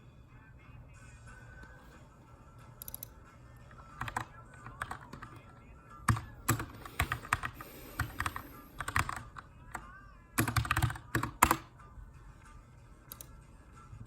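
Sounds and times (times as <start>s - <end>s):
typing on mechanical keyboard: 4.0s - 9.8s, 10.4s - 11.7s.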